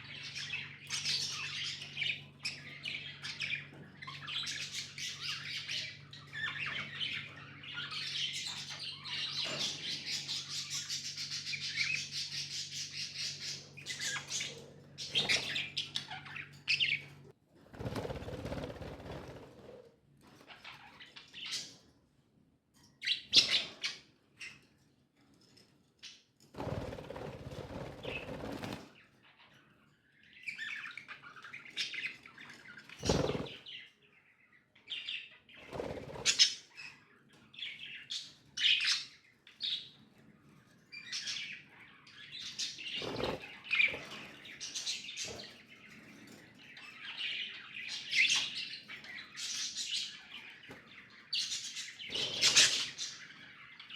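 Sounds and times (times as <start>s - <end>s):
budgerigars chirping: 51.2s - 53.9s.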